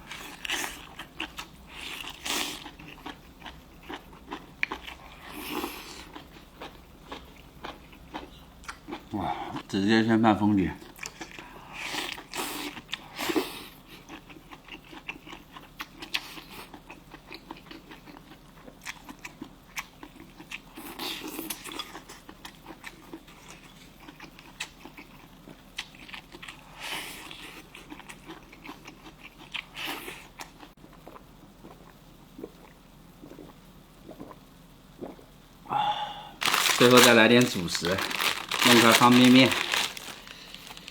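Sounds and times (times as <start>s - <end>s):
person chewing: 0.1s - 9.6s, 14.0s - 19.4s, 27.3s - 34.4s, 36.4s - 40.9s
bites and slurps: 30.9s - 34.4s.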